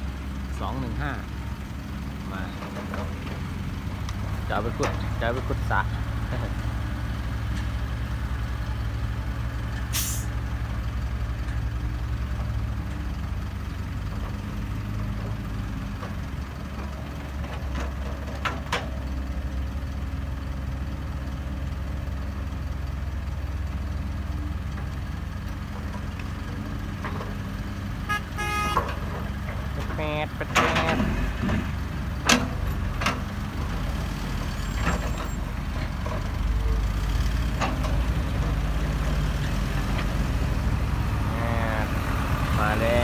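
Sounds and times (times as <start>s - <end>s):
diesel engines running: 0.0s - 43.0s
air brake hiss: 9.9s - 10.3s.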